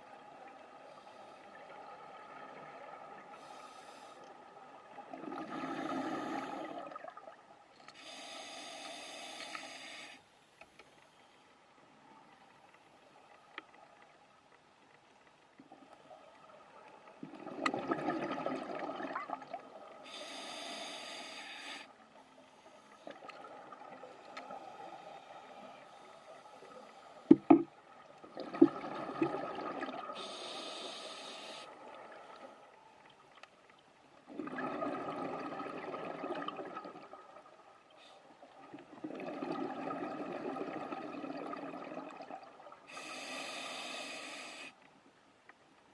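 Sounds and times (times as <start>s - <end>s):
regulator hiss: 8.0s - 10.4s, 20.1s - 21.9s, 30.2s - 31.7s, 42.9s - 44.8s.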